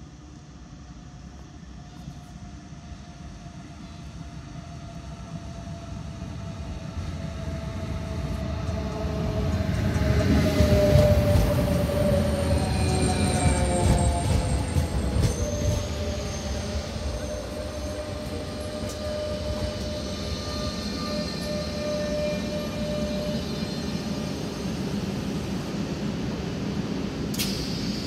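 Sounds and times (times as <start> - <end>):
electric train rumble: 0.0 - 28.0
brakes and wheels squealing: 7.7 - 25.9.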